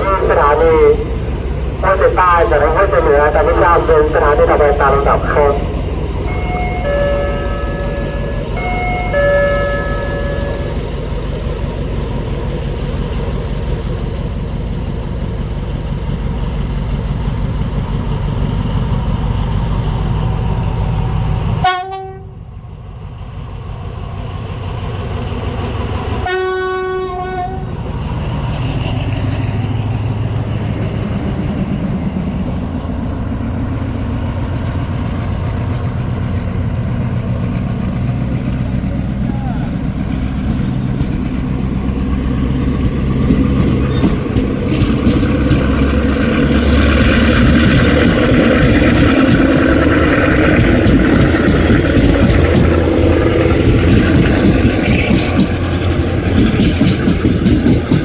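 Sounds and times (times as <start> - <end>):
diesel locomotive engine rumbling: 0.0 - 58.0
locomotive chord horn: 1.8 - 11.1, 21.6 - 22.5, 26.2 - 27.8.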